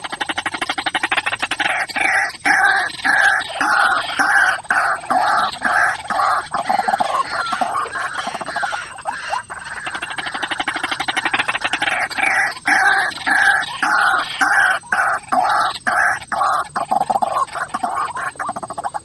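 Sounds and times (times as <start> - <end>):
fast rattling bird call: 0.0 - 19.0
waterhen harsh calls: 0.0 - 19.0.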